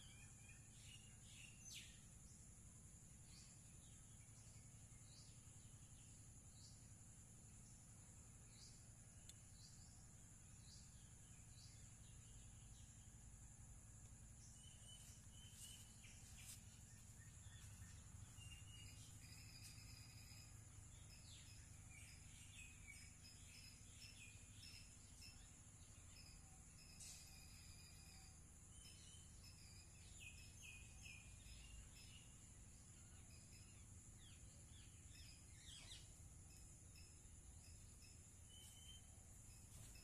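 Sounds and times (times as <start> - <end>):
bird chirps: 7.6 - 40.0
high-pitched insect drone: 14.4 - 40.0.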